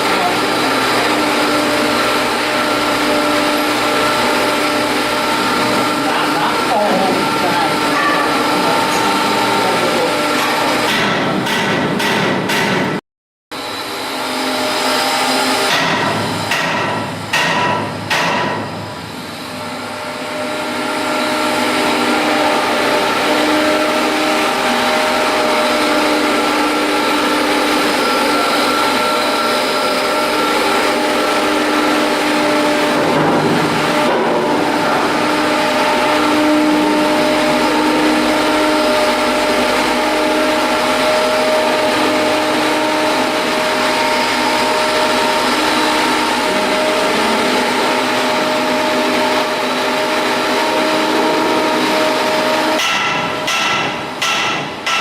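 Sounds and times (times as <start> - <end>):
machine humming and whining: 0.0 - 55.0
sharp metal knocks: 10.4 - 13.0, 15.6 - 18.9, 52.8 - 55.0.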